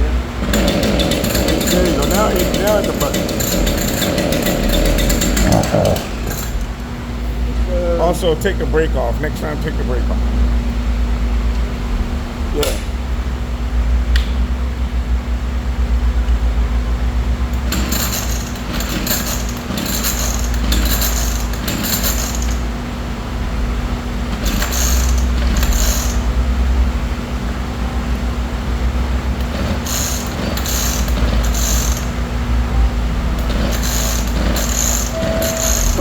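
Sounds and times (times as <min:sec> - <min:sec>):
chainsaw recoil starter pulls: 0:00.4 - 0:06.8, 0:17.6 - 0:22.6, 0:24.4 - 0:26.2, 0:29.4 - 0:32.1, 0:33.4 - 0:36.0.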